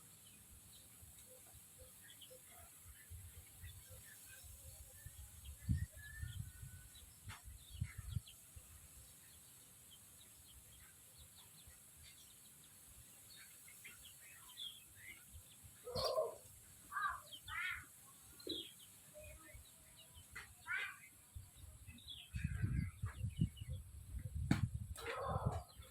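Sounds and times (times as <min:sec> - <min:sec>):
chickens chirping and clucking: 0:00.2 - 0:25.9
low thumps: 0:24.2 - 0:25.0.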